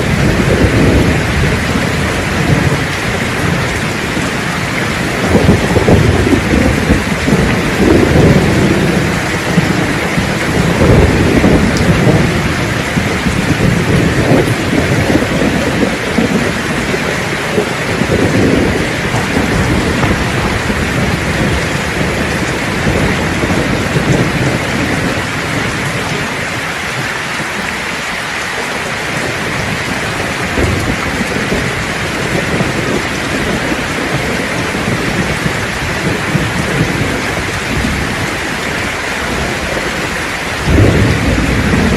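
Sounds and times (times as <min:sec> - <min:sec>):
heavy rain: 0:00.0 - 0:41.9
low rolling thunder: 0:00.0 - 0:41.9.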